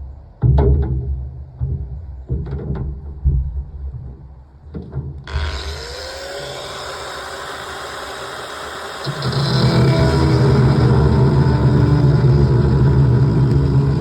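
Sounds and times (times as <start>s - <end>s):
power tool cutting steel plate: 5.3s - 14.0s.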